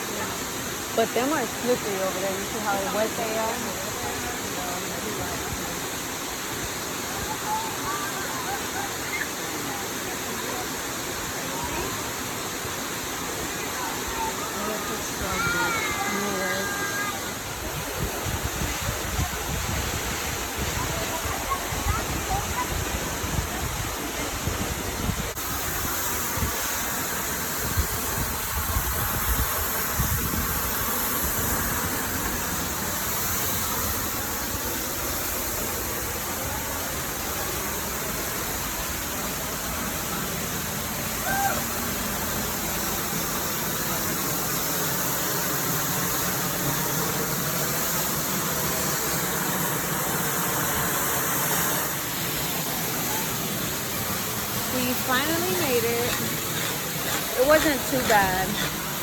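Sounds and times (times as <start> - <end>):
waterfall rushing: 0.0 - 59.0
wind buffeting microphone: 27.4 - 32.2.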